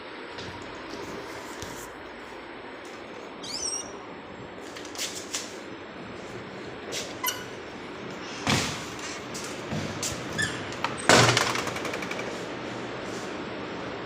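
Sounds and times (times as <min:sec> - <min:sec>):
high bird chirps: 0:03.4 - 0:04.0.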